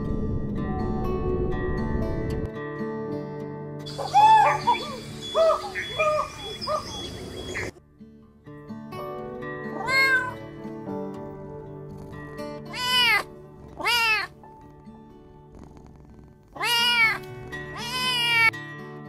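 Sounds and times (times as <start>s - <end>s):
soft background music: 0.0s - 19.0s
cat meowing: 4.0s - 6.8s, 9.7s - 10.4s, 12.7s - 14.4s, 16.6s - 18.6s.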